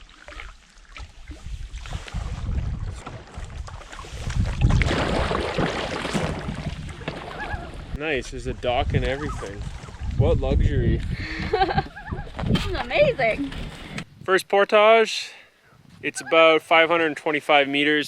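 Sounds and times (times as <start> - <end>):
wind buffeting microphone: 1.3 - 14.3.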